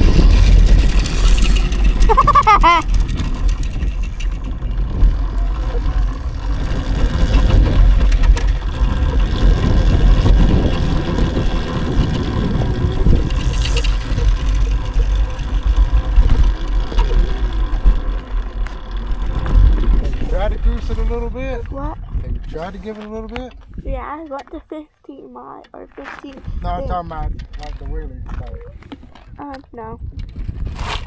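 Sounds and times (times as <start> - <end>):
electric motor whine: 0.0 - 23.7
wind rumble on microphone: 0.0 - 24.1, 26.4 - 31.0
tyre noise on dirt: 0.0 - 24.3.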